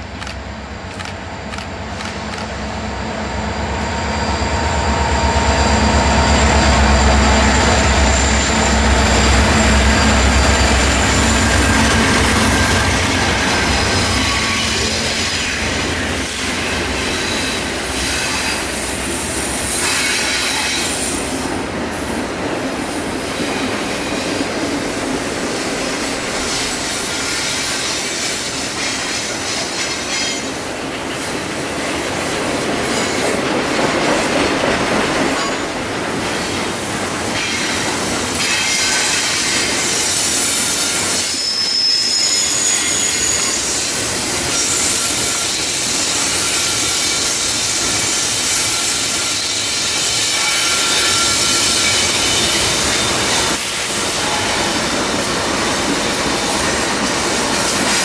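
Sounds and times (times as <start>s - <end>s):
freight train wheels rumbling: 0.0s - 58.0s
high-pitched wheel squeals: 3.3s - 15.6s, 40.2s - 53.6s.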